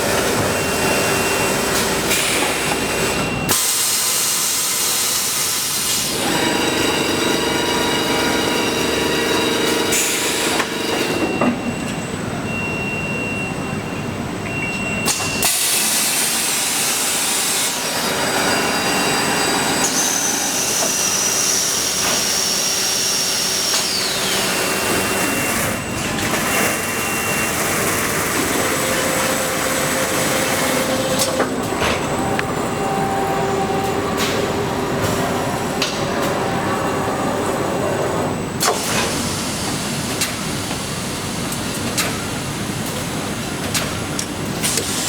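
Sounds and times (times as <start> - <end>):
production machinery mechanical noise: 0.0 - 45.0
high machine whine: 15.0 - 41.5.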